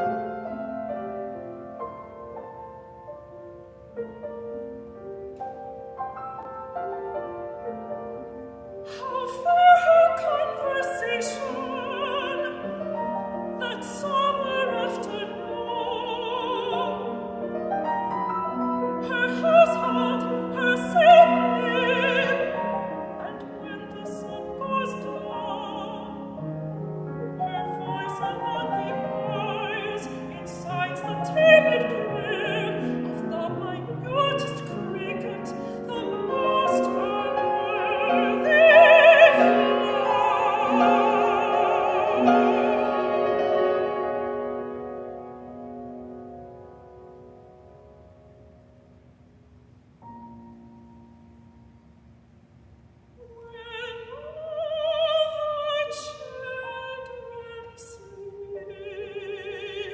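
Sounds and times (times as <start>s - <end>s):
piano accompaniment: 0.0s - 59.9s
woman singing with vibrato: 8.8s - 17.7s, 18.8s - 26.5s, 27.2s - 44.4s, 53.2s - 59.9s.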